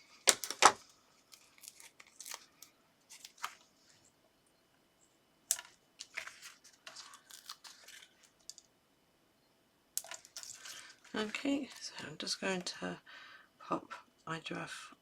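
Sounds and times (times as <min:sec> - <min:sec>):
paper rustling and crinkling: 0:00.0 - 0:04.0, 0:05.6 - 0:08.6, 0:10.0 - 0:12.1.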